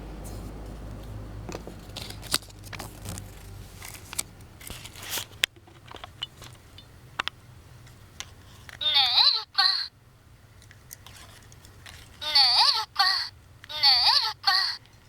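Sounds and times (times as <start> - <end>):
rustling: 0.2 - 6.8.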